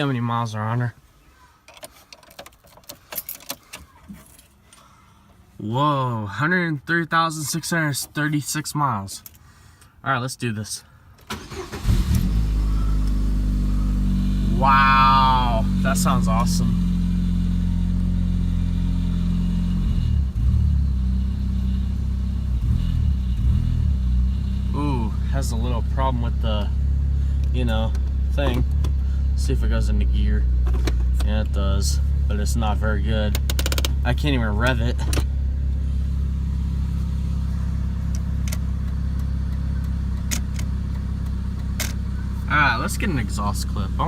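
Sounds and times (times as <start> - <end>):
car engine running: 11.3 - 44.0.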